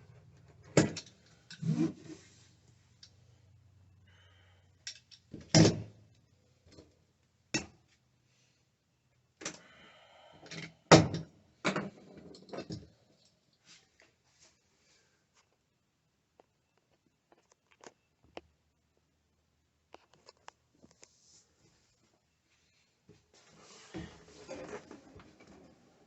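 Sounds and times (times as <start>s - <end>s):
knocks and thunks of handwork: 5.4s - 5.9s.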